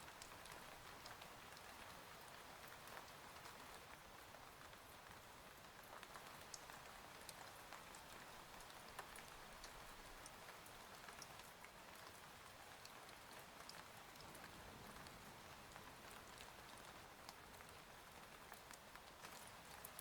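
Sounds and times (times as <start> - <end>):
faint steady rain: 0.0 - 20.0.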